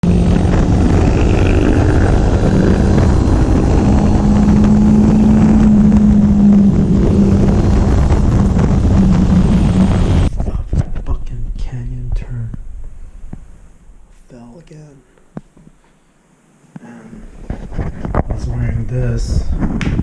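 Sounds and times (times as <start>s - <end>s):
loud motorcycle engine running: 0.0s - 10.3s.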